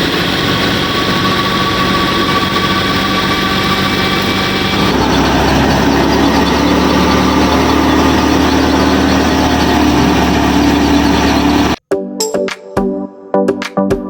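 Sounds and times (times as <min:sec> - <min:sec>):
machine engine humming: 0:00.0 - 0:11.8
electronic music with a beat: 0:11.8 - 0:14.0.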